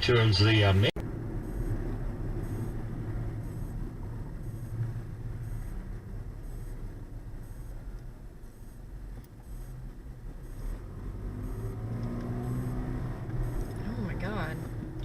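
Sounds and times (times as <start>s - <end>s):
car interior road noise: 0.0s - 15.0s.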